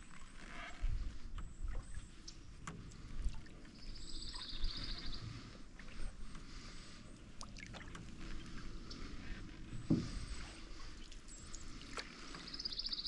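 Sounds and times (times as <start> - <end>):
paddle swishing water: 0.0 - 13.0
canoe hull knocks and creaks: 0.2 - 3.7, 7.2 - 11.2.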